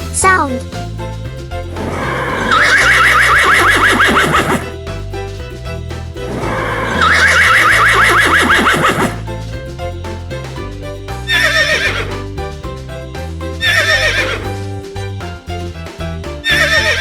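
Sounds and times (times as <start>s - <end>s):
background music: 0.0s - 17.0s
horse whinnying: 1.7s - 4.8s, 6.2s - 9.3s, 11.4s - 12.3s, 13.6s - 14.6s.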